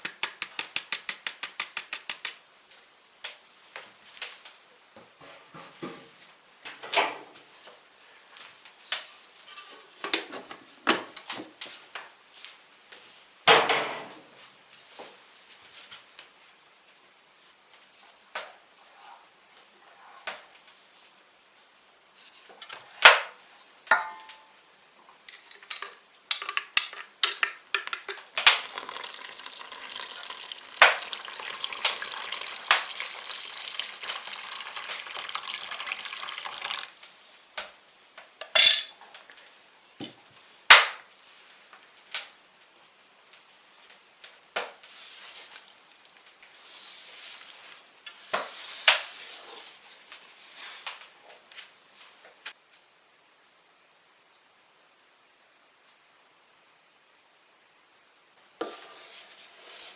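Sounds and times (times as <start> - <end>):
sharp clacks: 0.0 - 2.4.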